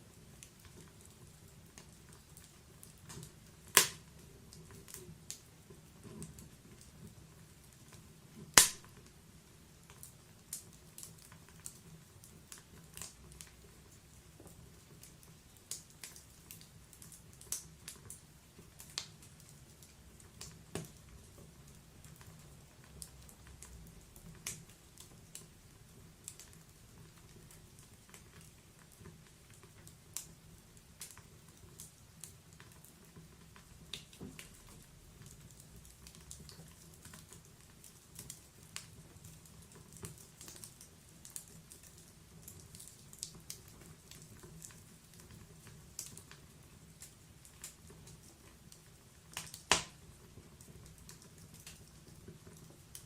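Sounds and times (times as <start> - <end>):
wood fire crackling and popping: 0.0 - 53.0.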